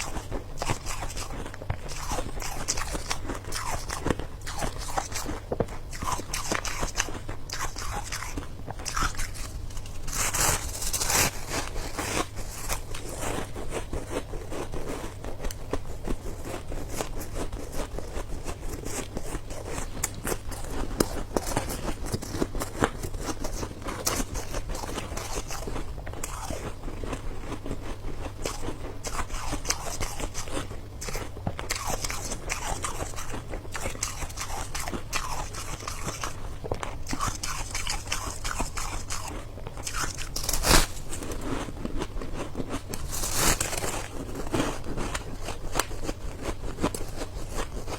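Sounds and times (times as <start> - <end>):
person crunching ice: 6.0 - 15.1, 37.1 - 47.9.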